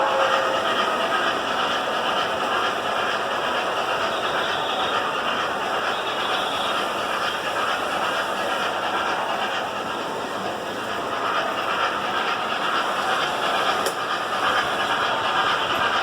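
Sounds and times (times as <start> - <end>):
model train whirring: 0.0 - 16.0.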